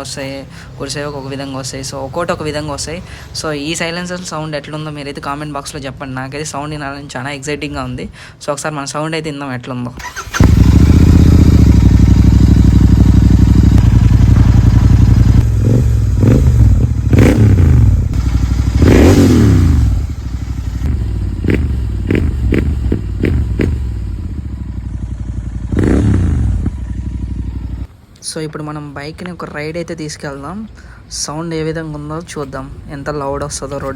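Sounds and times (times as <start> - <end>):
motorcycle engine revving: 10.0 - 27.9.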